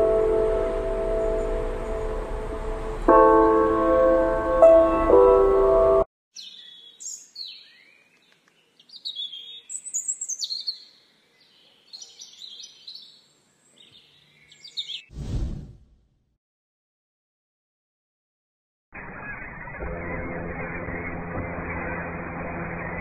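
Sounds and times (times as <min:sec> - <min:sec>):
birds chirping and trilling: 0:06.4 - 0:15.1, 0:19.0 - 0:22.1
short loud whoosh: 0:15.1 - 0:16.0.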